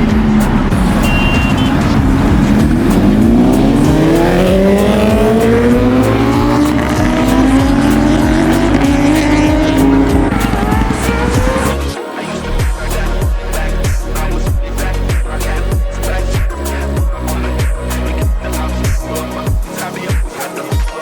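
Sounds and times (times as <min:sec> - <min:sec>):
motorcycle engine revving: 0:00.0 - 0:16.5.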